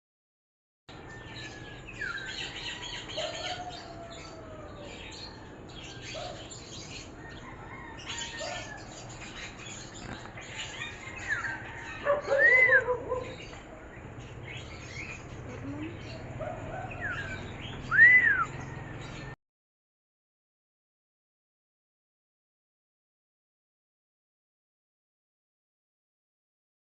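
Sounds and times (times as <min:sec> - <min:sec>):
birds singing and chirping: 0:00.9 - 0:19.4.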